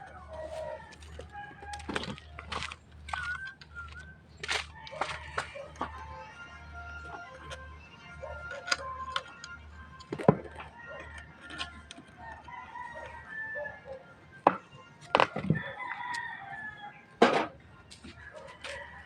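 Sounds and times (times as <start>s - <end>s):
rooster crowing: 0.0s - 2.6s, 4.7s - 7.6s, 10.3s - 14.2s, 15.2s - 17.1s, 18.1s - 19.0s
chickens clucking: 0.0s - 19.0s.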